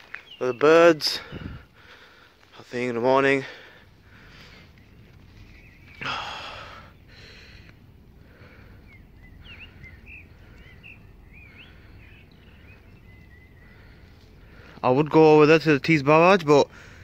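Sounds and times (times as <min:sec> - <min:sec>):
small birds chirping: 0:00.0 - 0:17.0
faint low rumble: 0:03.5 - 0:14.8.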